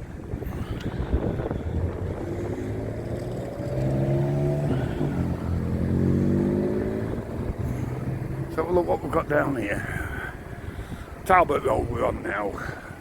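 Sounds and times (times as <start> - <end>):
wind gusts on microphone: 0.0 - 13.0
vehicle engine accelerating: 0.5 - 9.4.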